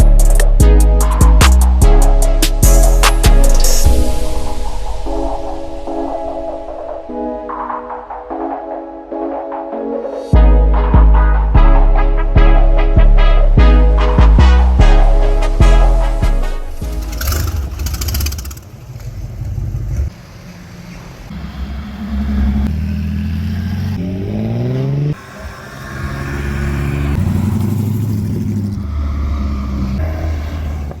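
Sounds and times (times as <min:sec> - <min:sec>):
car engine revving: 0:16.6 - 0:31.0
car engines running: 0:16.7 - 0:31.0.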